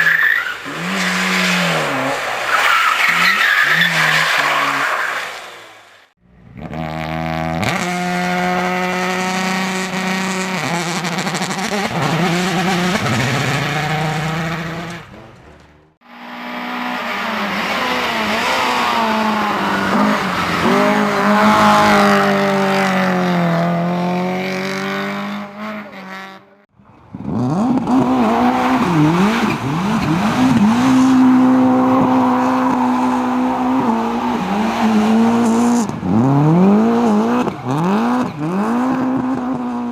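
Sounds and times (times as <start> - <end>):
racing car engines revving: 0.0 - 39.9.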